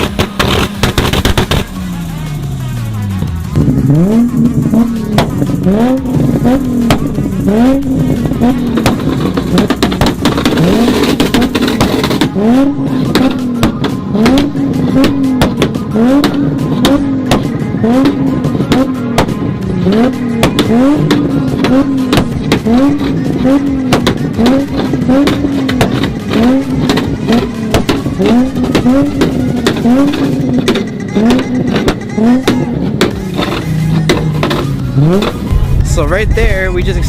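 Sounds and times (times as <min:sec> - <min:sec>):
exhaust pops and bangs: 0:00.0 - 0:02.1, 0:03.1 - 0:37.0
car engine revving: 0:00.0 - 0:37.0.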